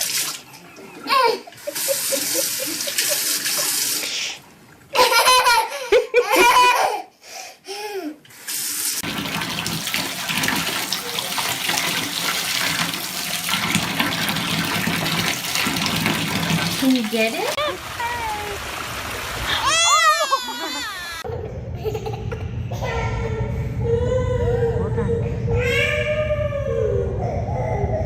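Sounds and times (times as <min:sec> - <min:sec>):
person laughing or calling out: 0:00.8 - 0:03.8, 0:19.5 - 0:21.3
rushing water: 0:09.0 - 0:20.3.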